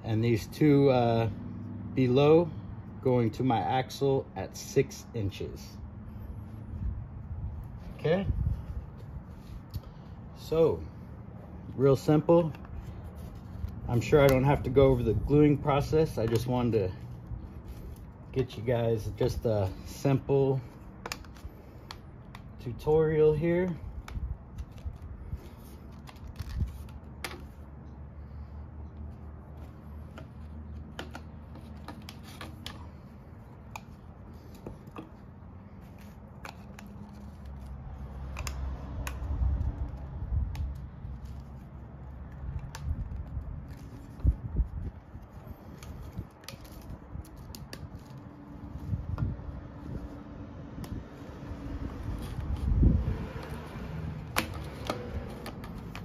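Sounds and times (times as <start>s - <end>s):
clicks and knocks of plastic pipes: 29.6s - 35.3s, 53.4s - 56.0s.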